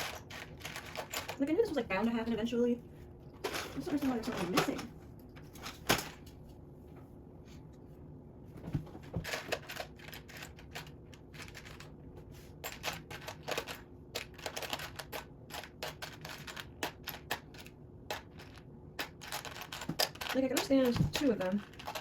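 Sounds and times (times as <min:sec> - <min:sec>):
plastic bricks clicking and rattling: 0:00.0 - 0:01.4, 0:12.6 - 0:22.0.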